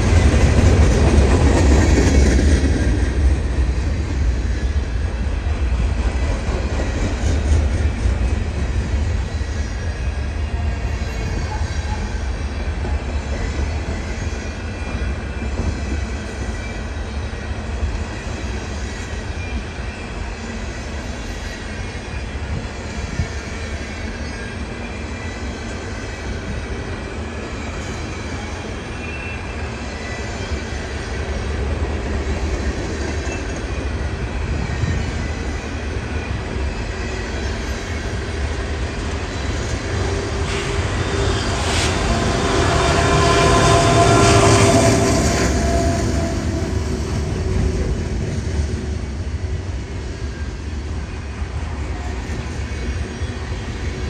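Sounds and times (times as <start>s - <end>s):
freight train rolling rumble: 0.0s - 54.0s
high-pitched wheel squeal: 39.3s - 48.0s.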